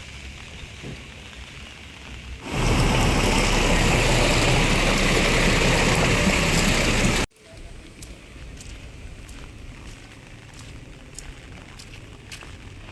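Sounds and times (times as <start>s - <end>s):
water rushing: 2.4s - 7.3s.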